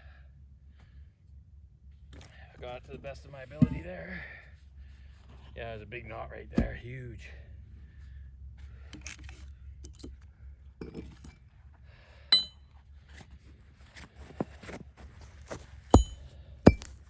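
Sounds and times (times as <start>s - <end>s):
metal striking splitting wedges: 12.3s - 12.6s, 15.9s - 17.0s.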